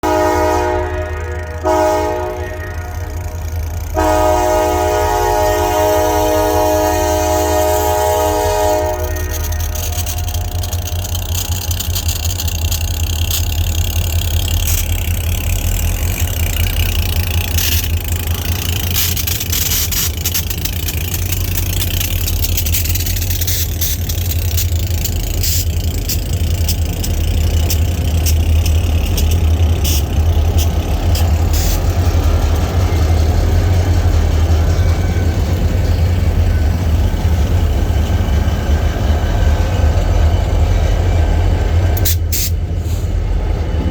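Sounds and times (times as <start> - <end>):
diesel locomotive engines rumbling: 0.0 - 43.9
sharp clicks and knocks: 8.9 - 33.7.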